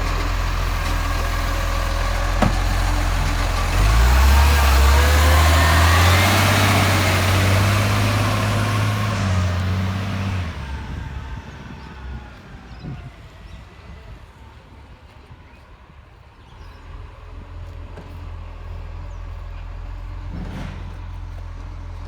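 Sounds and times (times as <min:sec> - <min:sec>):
garbage truck engine revving: 0:00.0 - 0:12.1.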